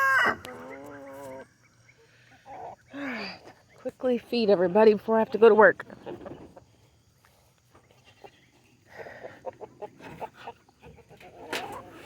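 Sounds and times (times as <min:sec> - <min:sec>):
ducks and chickens calling: 0:00.0 - 0:03.8, 0:07.7 - 0:12.0.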